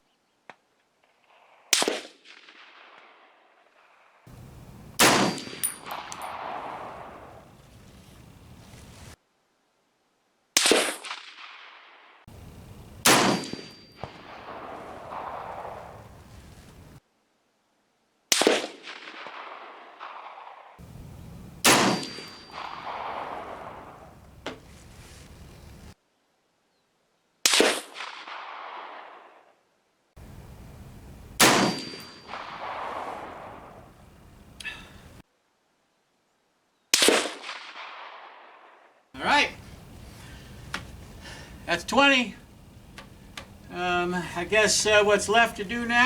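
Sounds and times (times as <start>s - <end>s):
rifle shots echoing: 1.7s - 3.4s, 4.3s - 8.6s, 10.6s - 17.0s, 18.3s - 24.6s, 27.5s - 29.4s, 30.2s - 35.2s, 37.0s - 46.0s
short metallic ring: 5.0s - 6.4s, 13.1s - 14.3s, 21.7s - 22.9s, 31.4s - 32.6s.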